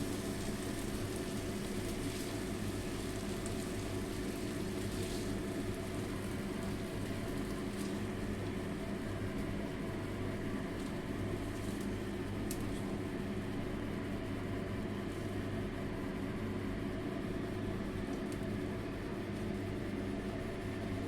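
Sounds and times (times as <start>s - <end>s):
machine hum: 0.0s - 14.9s.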